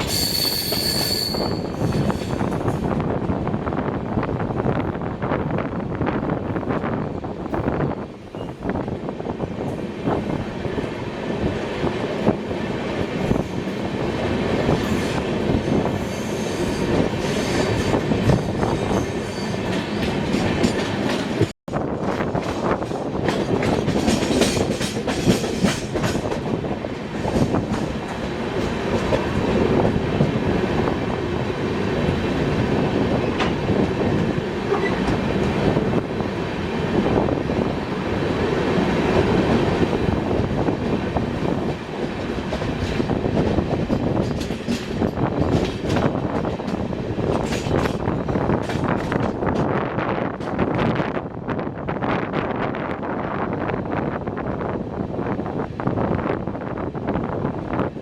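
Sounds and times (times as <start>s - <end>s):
high wheel squeal: 0.0s - 2.6s
train wheels clattering on rails: 0.0s - 3.4s, 7.5s - 51.2s.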